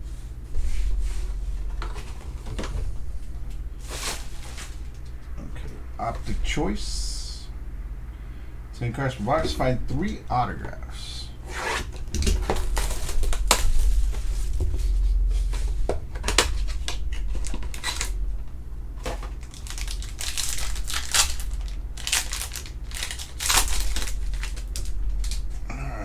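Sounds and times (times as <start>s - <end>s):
plastic wrap and card tearing: 16.2s - 18.2s, 19.0s - 25.6s.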